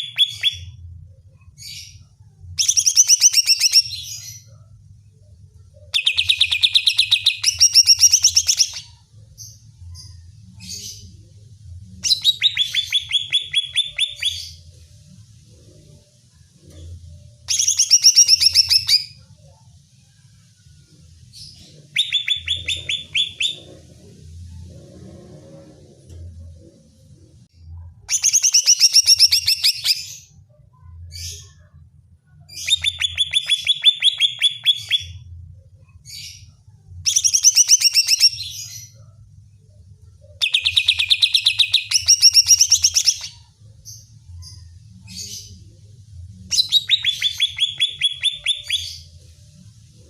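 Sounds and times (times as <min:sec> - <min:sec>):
faint low hum: 0:00.0 - 0:50.0
bird song sharp repeated notes: 0:12.1 - 0:14.6, 0:21.9 - 0:23.7, 0:32.6 - 0:35.3, 0:46.6 - 0:49.1.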